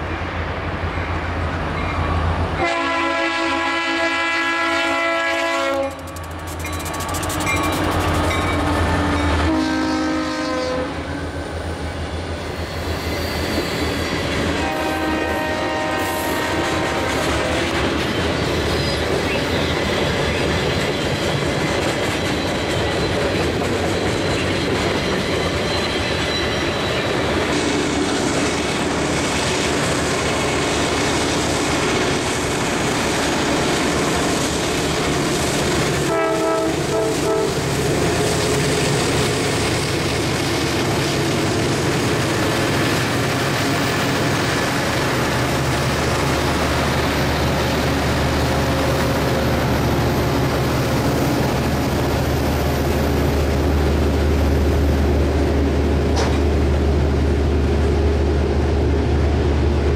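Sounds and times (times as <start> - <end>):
diesel locomotive engines: 0.0 - 59.9
locomotive air horn: 2.6 - 6.1, 9.3 - 11.2, 14.6 - 17.3, 36.0 - 37.7
train wheels clattering on rails: 5.7 - 9.5, 12.0 - 55.1, 55.8 - 56.9.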